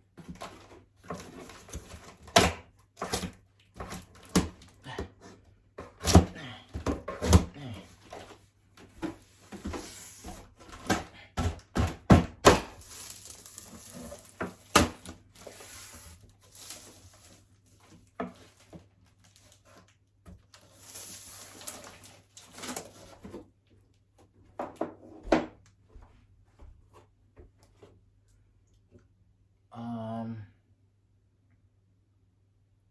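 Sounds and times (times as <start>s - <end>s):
knocks and thumps on cardboard: 10.6s - 12.7s.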